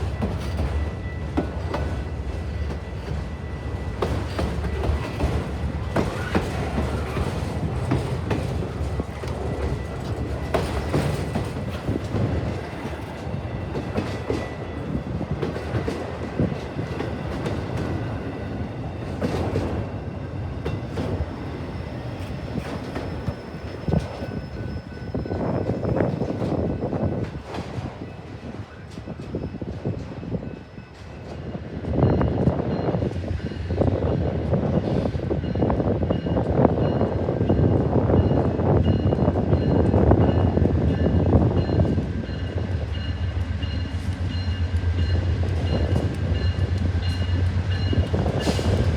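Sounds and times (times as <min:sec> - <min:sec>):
train wheels clicking over rails: 0:00.0 - 0:24.4, 0:41.7 - 0:48.9
train rumble: 0:00.0 - 0:48.9
faint high wheel squeal: 0:21.5 - 0:27.2.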